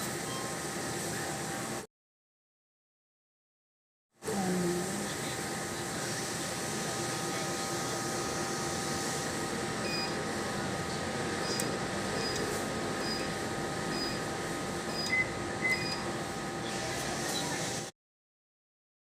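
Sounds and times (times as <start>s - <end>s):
air conditioning hum: 0.0s - 1.9s, 4.2s - 17.9s
atm button beeps: 9.8s - 10.2s, 11.4s - 14.3s, 14.9s - 16.1s
louder lower beeps: 13.0s - 13.3s, 13.9s - 14.2s, 14.9s - 16.0s.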